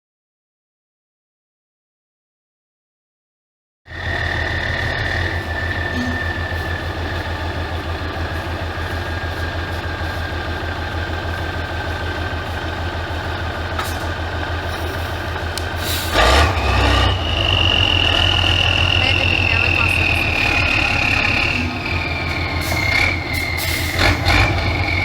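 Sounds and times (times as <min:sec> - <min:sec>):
truck engine idling: 0:03.9 - 0:25.0
thin high whine: 0:04.3 - 0:07.6.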